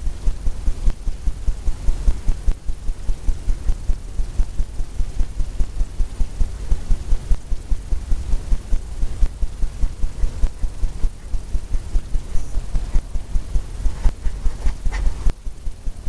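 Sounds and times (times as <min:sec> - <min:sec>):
brush dabbing on canvas: 0:10.1 - 0:15.3.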